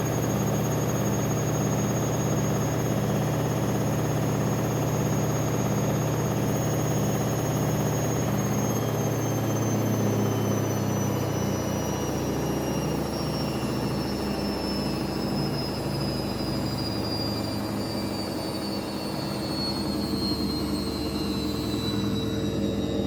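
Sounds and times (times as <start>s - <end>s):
high motor whine: 0.0s - 23.0s
washing machine spin hum: 0.0s - 23.0s.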